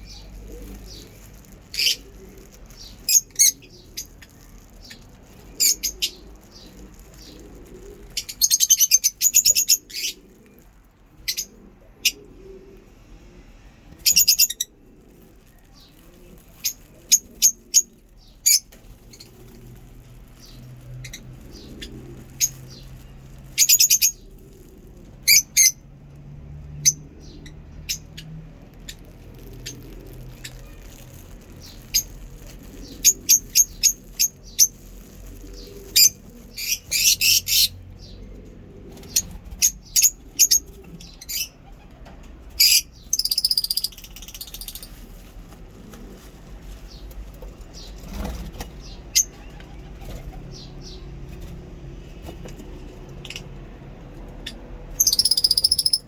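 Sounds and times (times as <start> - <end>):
bird chatter: 0.0 - 12.3, 14.0 - 25.8, 26.8 - 38.3, 38.9 - 42.0, 42.6 - 45.2, 54.4 - 56.0
lovebirds chirping: 0.0 - 12.4, 14.0 - 25.8, 26.8 - 45.2, 54.4 - 56.0.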